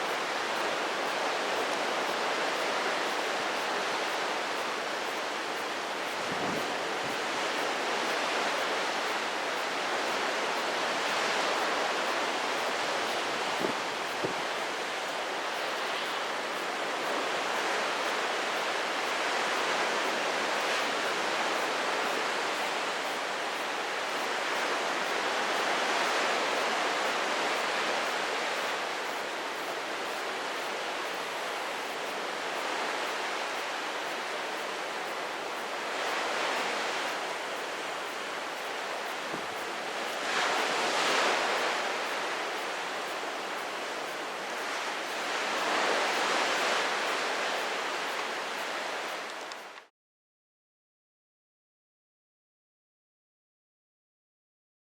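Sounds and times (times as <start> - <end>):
strong wind rushing: 6.1 - 7.3.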